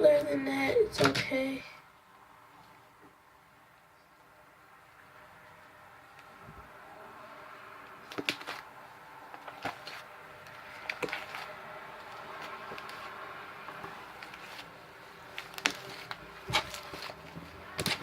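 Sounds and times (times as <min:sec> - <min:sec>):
slime squelching: 0:07.9 - 0:18.0.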